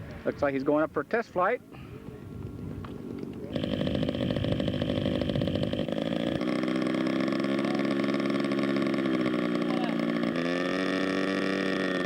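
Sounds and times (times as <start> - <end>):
model airplane engine buzzing: 3.0 - 12.0.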